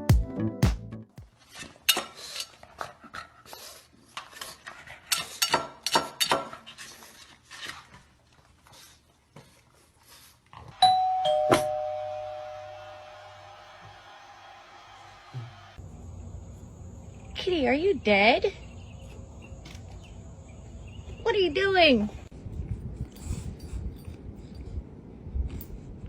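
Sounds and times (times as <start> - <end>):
two-tone doorbell chime: 10.8 - 13.2.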